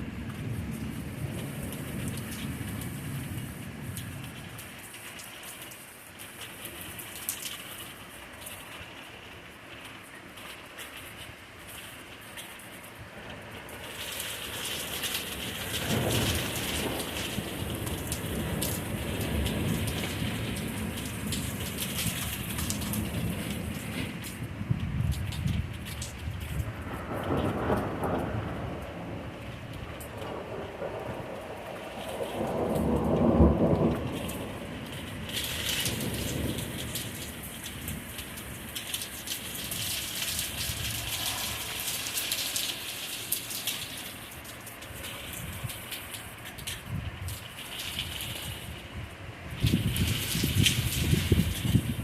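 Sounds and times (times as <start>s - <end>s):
rain falling: 0.0s - 52.0s
raindrops striking close by: 0.0s - 52.0s
thunder rumble: 14.8s - 39.0s, 39.7s - 42.6s, 48.0s - 52.0s.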